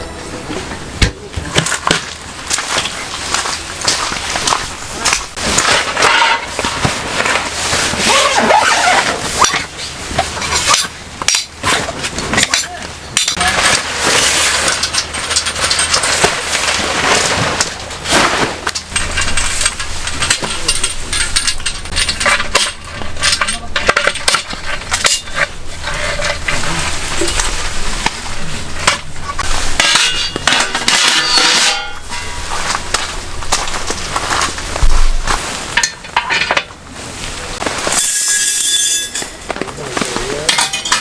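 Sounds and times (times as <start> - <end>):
metal cookware clinking: 18.3 - 32.9, 38.0 - 41.0.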